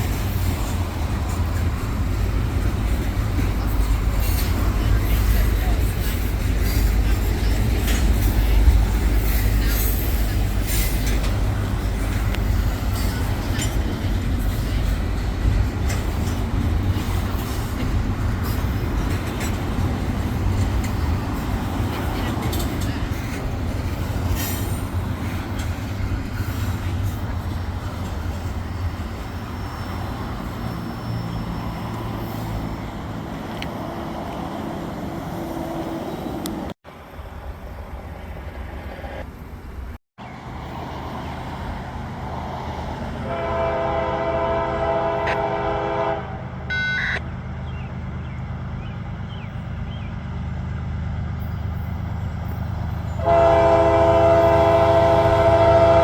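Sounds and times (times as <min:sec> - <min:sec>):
train rumbling past: 0:00.0 - 0:56.0
locomotive air horn: 0:43.2 - 0:47.2, 0:53.2 - 0:56.0.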